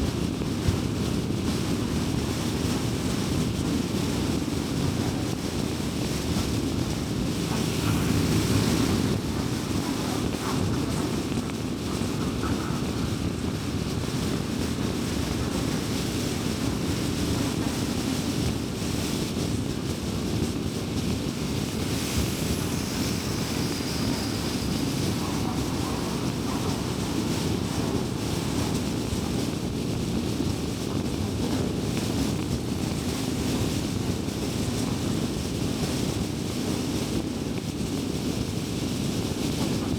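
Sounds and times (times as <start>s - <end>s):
wind rush: 0.0s - 39.9s
car road noise: 4.9s - 33.6s.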